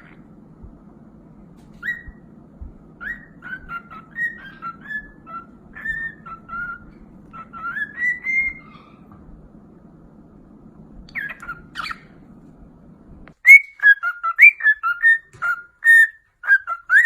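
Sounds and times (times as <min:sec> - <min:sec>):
parrot whistling: 0:01.8 - 0:02.3, 0:03.0 - 0:09.1, 0:11.1 - 0:12.2, 0:13.4 - 0:17.0.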